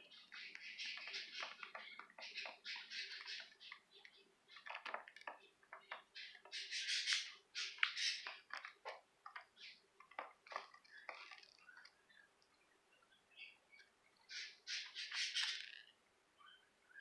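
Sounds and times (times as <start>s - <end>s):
budgerigars chirping: 0.0s - 8.8s, 14.2s - 15.8s.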